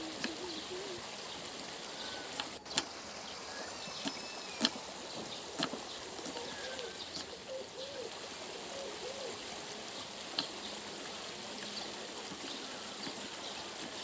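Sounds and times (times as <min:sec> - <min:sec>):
dove cooing: 0:00.0 - 0:01.2, 0:06.2 - 0:09.5
steady hiss: 0:00.0 - 0:14.0.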